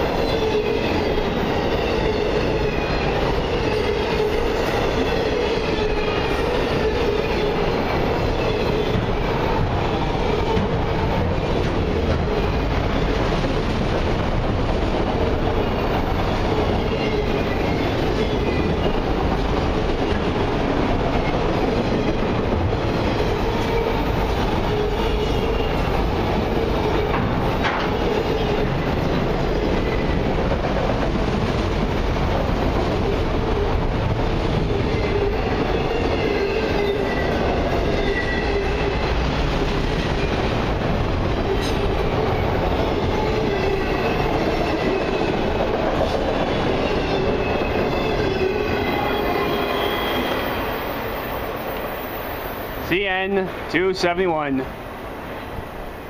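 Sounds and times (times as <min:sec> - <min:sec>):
steel wheels rumbling on rail: 0:00.0 - 0:56.0
high-pitched wheel squeals: 0:46.9 - 0:52.7.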